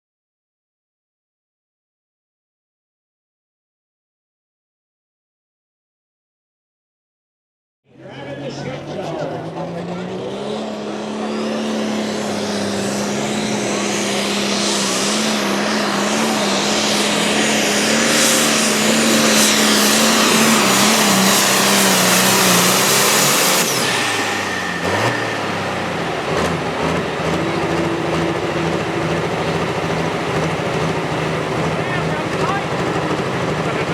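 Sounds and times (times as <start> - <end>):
engine running at full throttle: 7.9 - 33.9.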